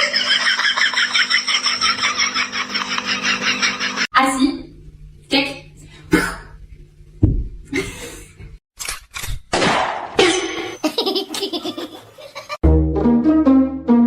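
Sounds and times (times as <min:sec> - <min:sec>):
brief clip sounds: 0:08.8 - 0:09.4
background music with held notes: 0:12.6 - 0:14.0.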